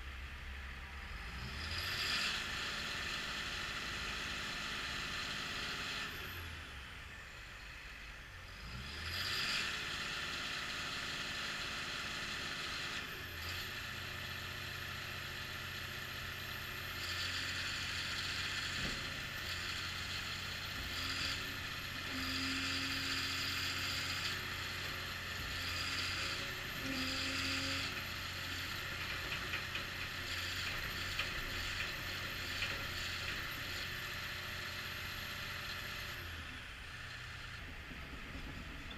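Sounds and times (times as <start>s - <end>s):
diesel engine with mechanical clatter: 0.0s - 38.9s.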